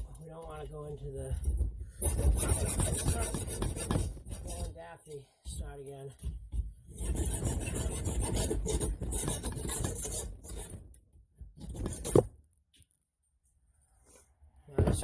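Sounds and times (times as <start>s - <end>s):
hacksaw cutting: 2.0s - 4.7s, 6.9s - 10.8s.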